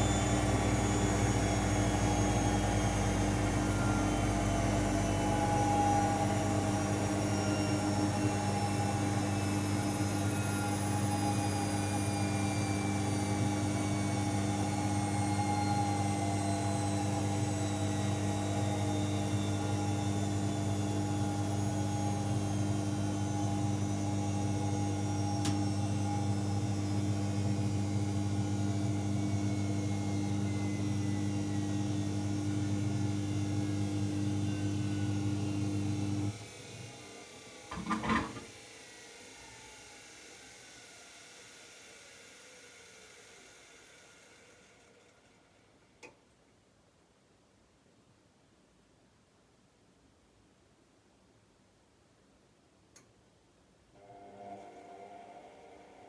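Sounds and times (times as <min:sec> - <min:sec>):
washing machine motor whine: 0:00.0 - 0:38.7
click: 0:25.4 - 0:25.6, 0:46.0 - 0:46.3, 0:52.9 - 0:53.1.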